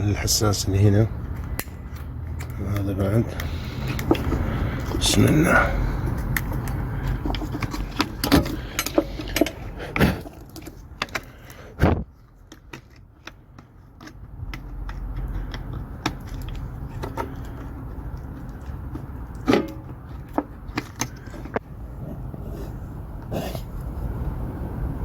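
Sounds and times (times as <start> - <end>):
diesel engine cranking: 0.0 - 11.8.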